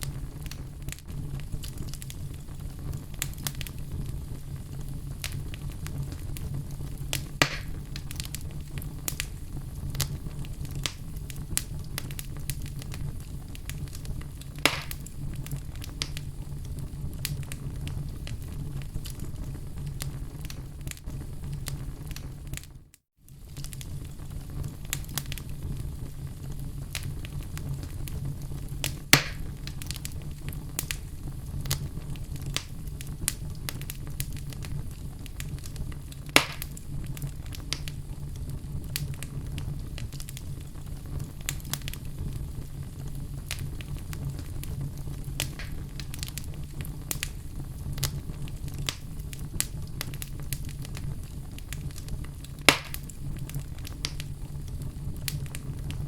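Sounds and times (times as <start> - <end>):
fire crackling: 0.0 - 56.0
loud pops from fire: 0.0 - 56.0
low rumble of flame: 0.0 - 56.0.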